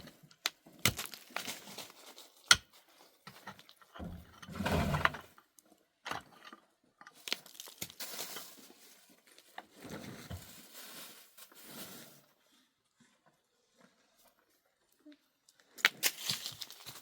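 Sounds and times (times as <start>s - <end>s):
crunching and rustling handling: 0.0s - 4.2s, 7.1s - 12.4s, 15.5s - 17.0s.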